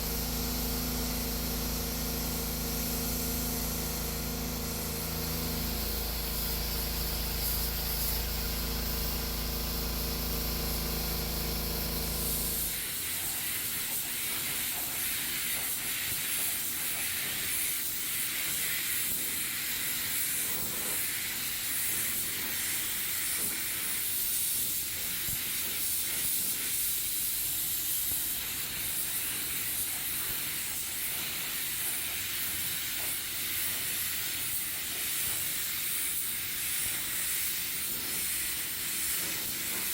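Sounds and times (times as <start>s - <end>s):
steady motor hum: 0.0s - 13.8s
spray gun hissing: 0.0s - 39.9s.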